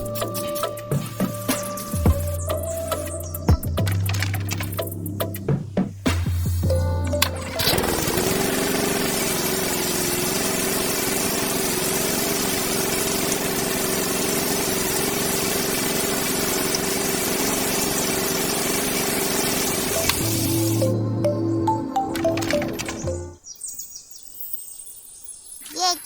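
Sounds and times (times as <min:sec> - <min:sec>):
small motor hissing: 0:00.0 - 0:05.2, 0:07.4 - 0:21.0.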